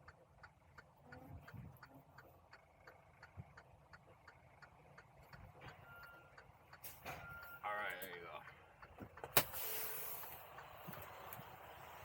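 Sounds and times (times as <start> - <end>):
faint regular ticking: 0.0 - 6.8, 7.8 - 9.3.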